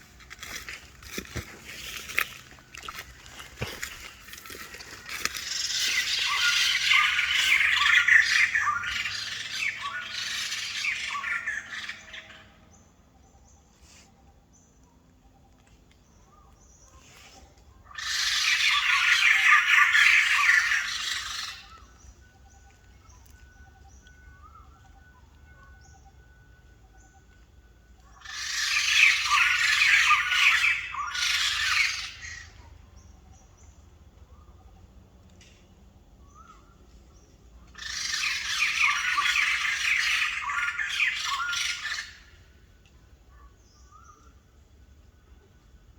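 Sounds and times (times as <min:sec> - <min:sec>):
bird calling harshly: 0:00.4 - 0:12.3, 0:17.9 - 0:22.0, 0:28.1 - 0:32.6, 0:37.8 - 0:42.4.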